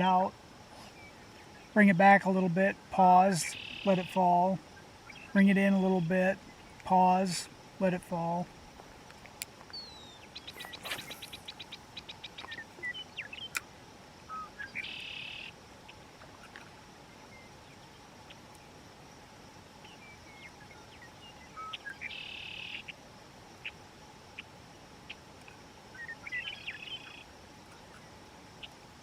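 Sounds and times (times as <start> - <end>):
short bird chirps: 9.8 - 13.6
bird note and buzzy trill: 10.5 - 11.6.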